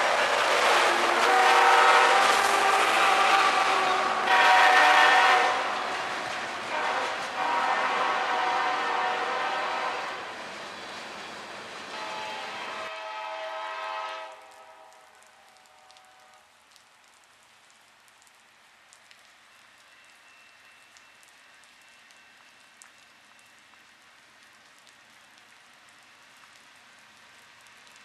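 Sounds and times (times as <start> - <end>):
heavy rain hissing: 0.0 - 16.5
locomotive horn: 0.6 - 10.3, 11.9 - 16.5
raindrops ticking: 14.2 - 28.0.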